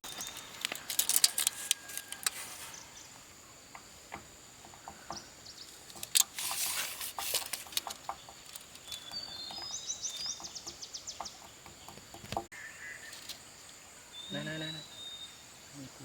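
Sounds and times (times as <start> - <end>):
bird chirping: 0.0 - 16.0
rustling hiss: 0.0 - 16.0
light clicks and knocks: 3.7 - 12.5.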